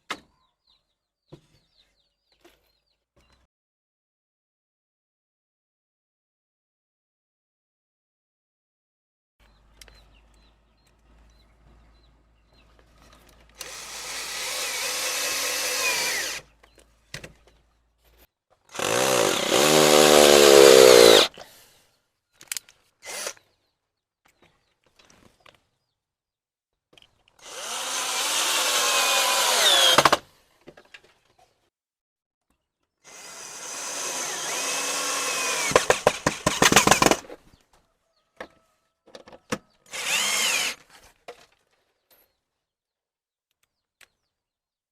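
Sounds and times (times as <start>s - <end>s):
drill clicks: 13.5s - 16.4s, 22.4s - 23.5s, 27.4s - 30.2s, 33.1s - 37.3s, 39.9s - 40.8s
power drill running: 13.6s - 16.4s, 18.7s - 21.3s, 23.0s - 23.4s, 27.4s - 30.2s, 33.1s - 37.2s, 39.9s - 40.8s.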